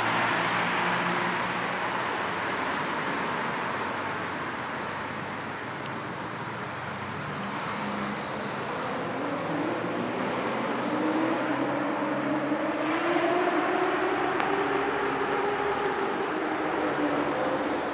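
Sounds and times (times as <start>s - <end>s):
passing cars: 0.0s - 17.9s
vehicle engine accelerating: 7.6s - 17.9s.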